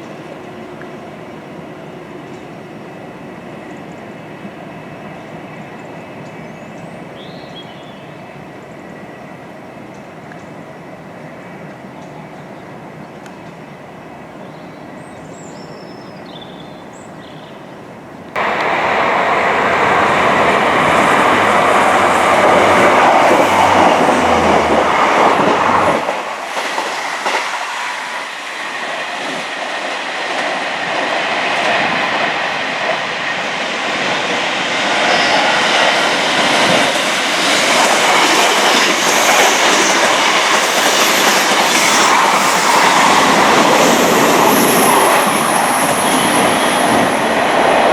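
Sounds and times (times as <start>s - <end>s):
train wheels clattering on rails: 18.4s - 47.9s.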